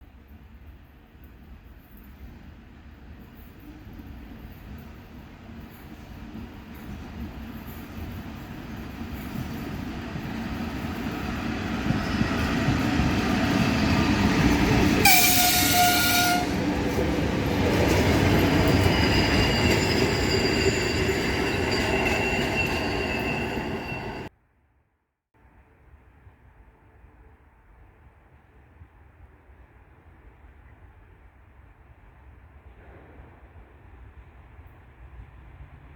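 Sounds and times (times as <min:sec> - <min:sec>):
electric train rumbling past: 0:02.2 - 0:24.3
train horn blast: 0:15.0 - 0:16.8.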